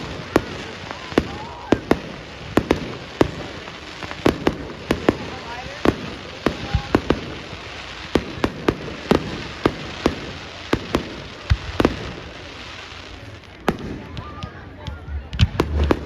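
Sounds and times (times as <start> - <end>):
fireworks bangs: 0.0 - 16.0
fireworks crackle: 0.0 - 16.0.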